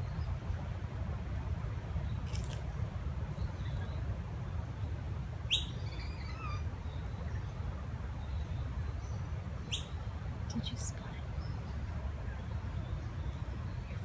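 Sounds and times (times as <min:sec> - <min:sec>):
bird calls and chirps: 0:08.3 - 0:10.0.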